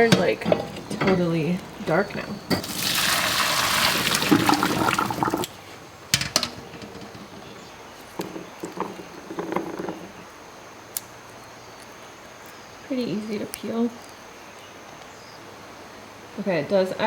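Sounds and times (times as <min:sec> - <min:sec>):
water pouring: 0:00.0 - 0:07.6.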